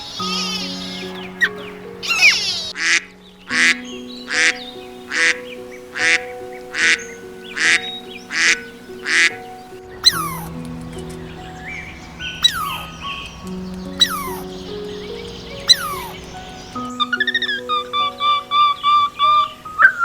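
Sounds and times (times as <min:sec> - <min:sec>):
background music with held notes: 0:00.0 - 0:20.0
duck quacking: 0:00.2 - 0:05.4, 0:07.6 - 0:09.4.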